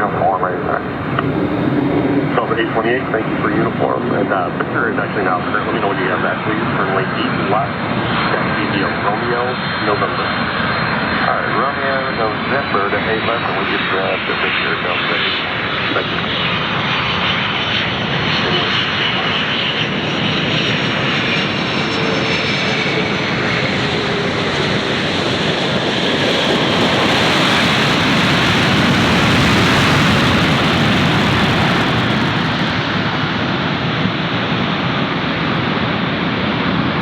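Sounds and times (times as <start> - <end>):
jet engines rumbling: 0.0 - 37.0
faint falling whine: 25.5 - 32.7.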